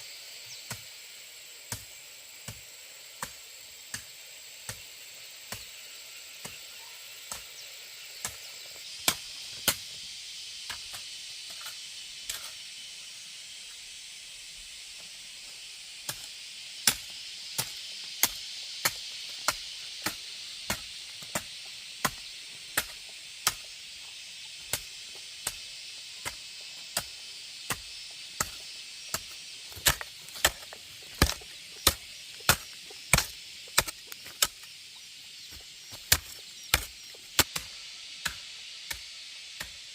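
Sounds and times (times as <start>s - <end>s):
steady high hiss: 0.0s - 39.9s
blade chopping: 28.4s - 34.7s, 35.5s - 38.4s.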